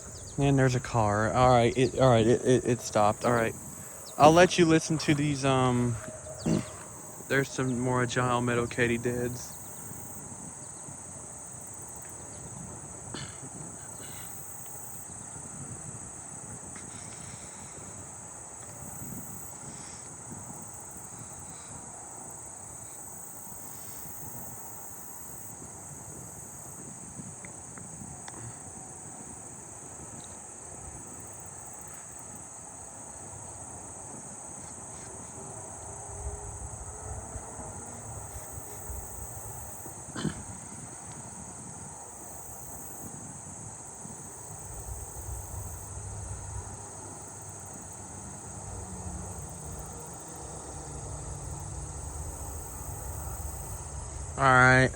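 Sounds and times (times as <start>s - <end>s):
katydids buzzing: 0.0s - 10.2s
low rumble: 51.2s - 54.9s.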